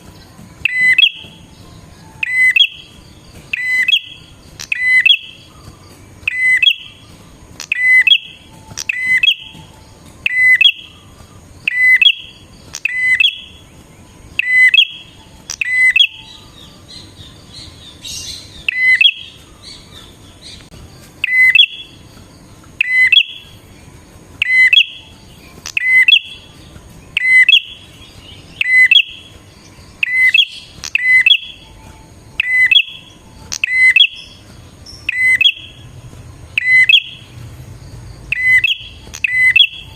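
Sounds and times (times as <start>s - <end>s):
soft bird twittering: 0.0s - 39.9s.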